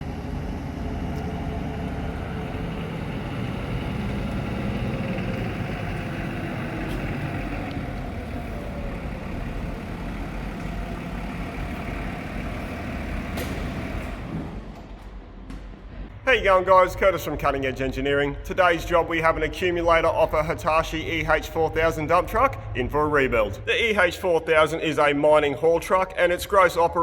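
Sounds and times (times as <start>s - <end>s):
diesel truck engine rumbling: 0.0s - 27.0s.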